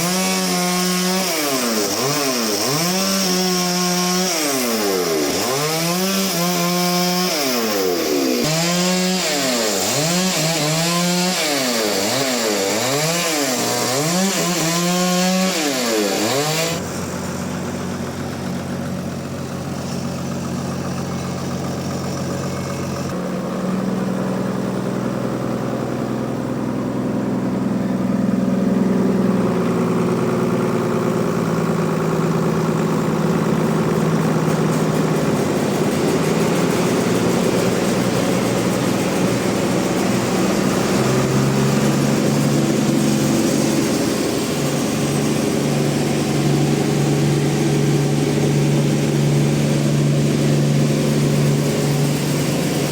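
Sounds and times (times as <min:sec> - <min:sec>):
sawmill engine humming: 0:00.0 - 0:52.9.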